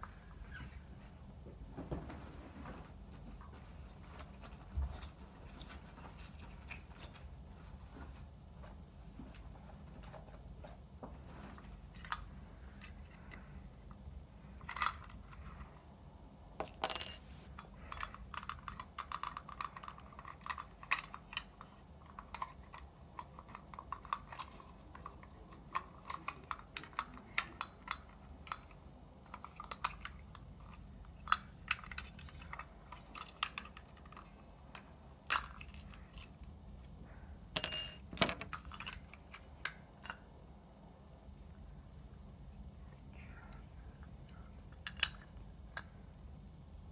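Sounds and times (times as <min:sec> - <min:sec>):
small metal parts clinking: 0:16.6 - 0:21.4, 0:35.2 - 0:36.5, 0:37.6 - 0:40.2.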